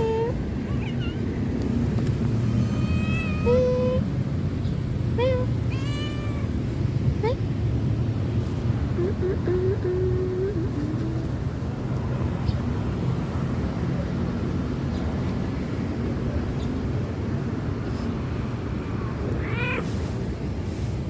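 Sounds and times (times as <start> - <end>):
cat meowing: 0.0 - 1.2, 2.5 - 4.0, 5.4 - 6.6, 19.3 - 20.0.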